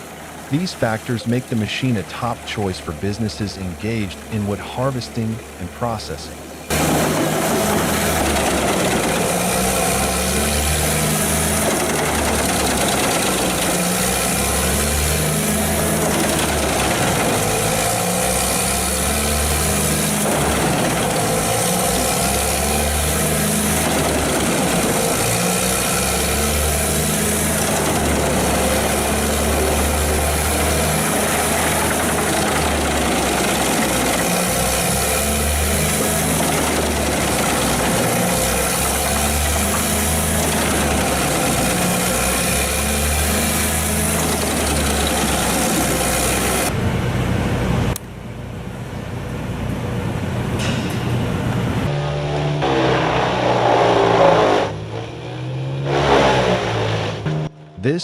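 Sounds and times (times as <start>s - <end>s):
wood chipper grinding: 6.7s - 46.8s, 51.6s - 57.4s.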